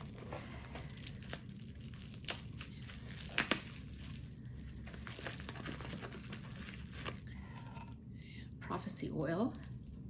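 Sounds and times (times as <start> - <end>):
packaging crinkling: 0.0 - 7.4.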